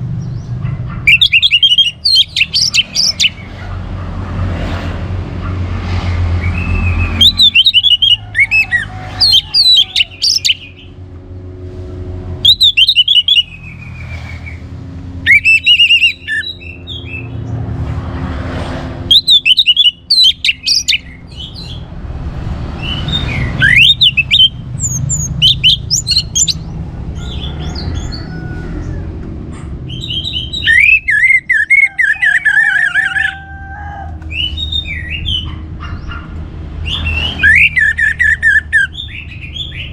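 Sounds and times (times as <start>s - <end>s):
thrush singing whistled trills: 1.1s - 3.5s, 6.4s - 11.0s, 12.4s - 14.6s, 15.2s - 17.4s, 19.1s - 21.9s, 22.8s - 28.1s, 29.9s - 33.4s, 34.3s - 35.6s, 36.8s - 39.9s.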